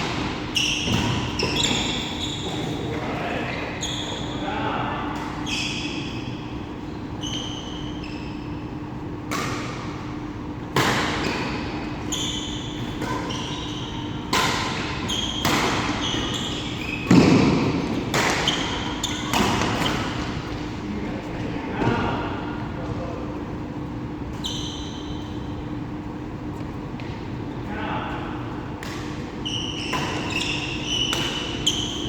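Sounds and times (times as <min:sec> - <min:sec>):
shoes squeaking on court floor: 0:00.0 - 0:09.7, 0:11.2 - 0:20.7, 0:24.3 - 0:25.8, 0:29.0 - 0:32.0
racket hitting shuttlecock: 0:12.8 - 0:20.3, 0:31.0 - 0:32.0.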